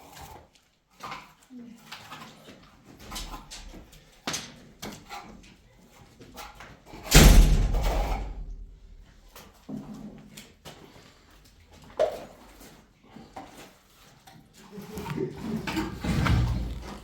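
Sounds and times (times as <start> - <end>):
loud thud: 7.1 - 9.1.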